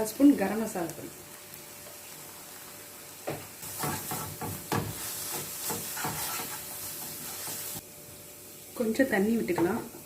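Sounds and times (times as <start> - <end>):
masala sizzling in a pan: 0.0 - 10.0
spoon scraping a pan: 3.6 - 7.8.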